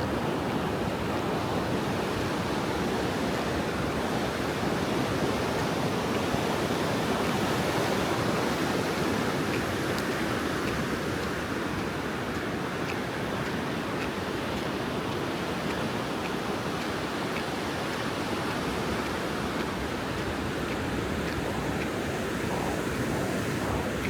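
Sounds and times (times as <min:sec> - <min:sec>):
ocean surf on a beach: 0:00.0 - 0:24.0
faint light ticks: 0:08.9 - 0:24.0.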